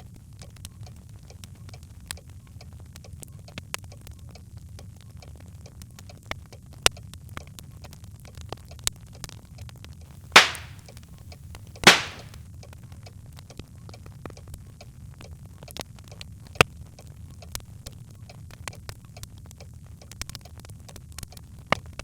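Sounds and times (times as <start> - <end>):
burning log pops: 10.4 - 10.8, 11.9 - 12.4
fire crackling: 10.4 - 10.8, 11.9 - 12.4
sharp snap of burning log: 10.4 - 10.8, 11.9 - 12.3.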